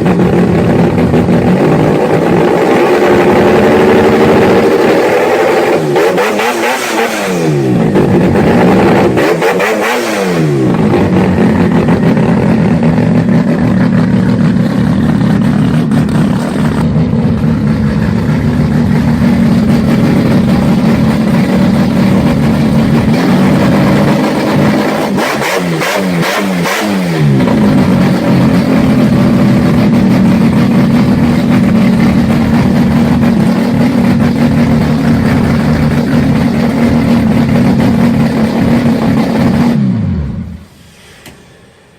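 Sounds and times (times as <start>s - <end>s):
vehicle engine revving: 0.0s - 40.8s.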